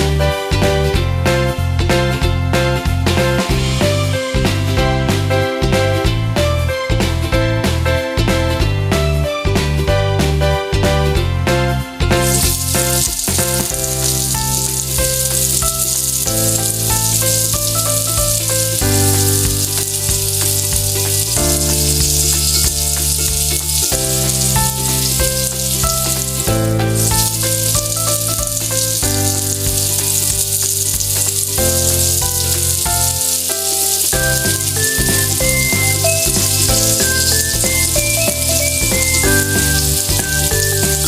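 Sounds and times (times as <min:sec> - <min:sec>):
background music with held notes: 0:00.0 - 0:41.0
food sizzling in hot oil: 0:12.1 - 0:41.0.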